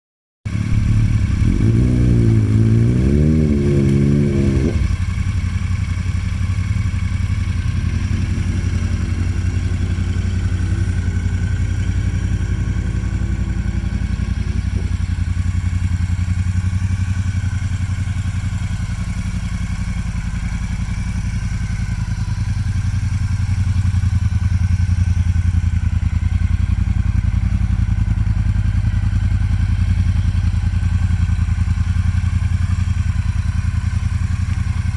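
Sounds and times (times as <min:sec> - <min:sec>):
motorcycle engine running: 0:00.5 - 0:34.9.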